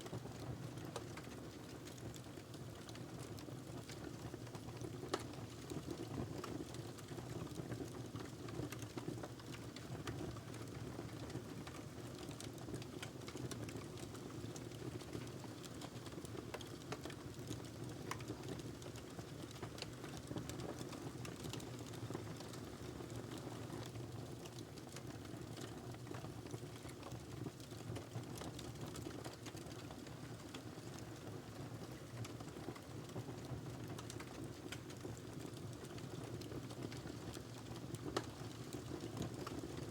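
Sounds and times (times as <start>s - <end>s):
wood fire crackling: 33.8s - 39.7s.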